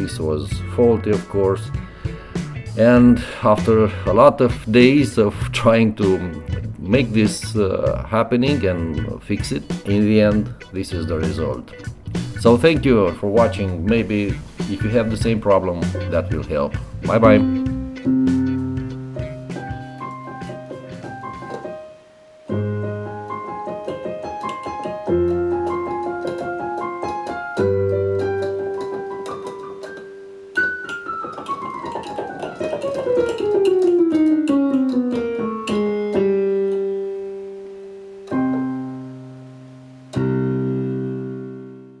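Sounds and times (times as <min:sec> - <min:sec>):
electronic keyboard music: 0:00.0 - 0:42.0.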